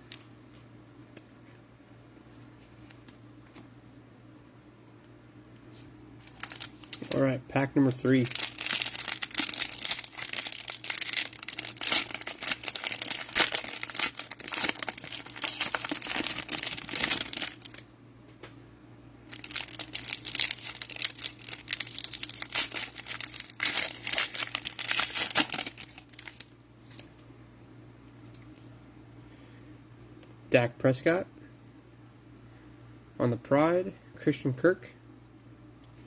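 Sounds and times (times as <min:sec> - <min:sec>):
plastic wrapper crinkling and tearing: 0:06.2 - 0:07.2, 0:07.9 - 0:17.8, 0:19.3 - 0:27.1.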